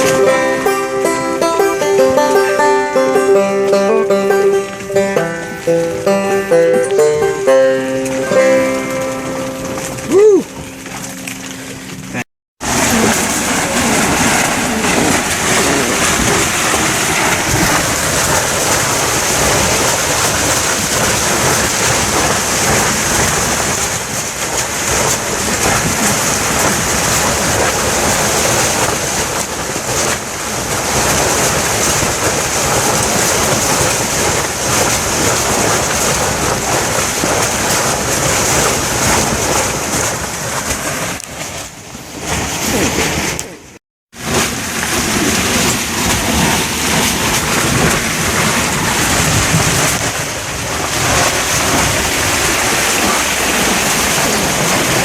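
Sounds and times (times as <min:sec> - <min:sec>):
torrential rain hissing: 0:12.6 - 0:23.7
wind buffeting: 0:12.6 - 0:41.0.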